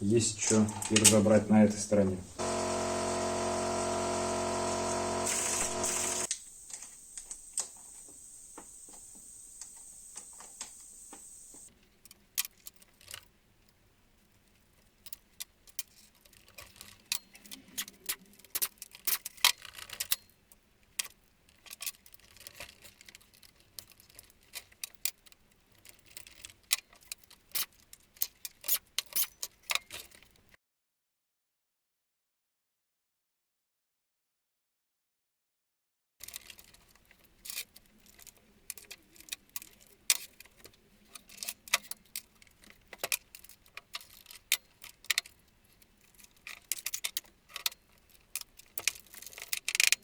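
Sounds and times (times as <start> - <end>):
steady hiss: 2.2 - 11.7.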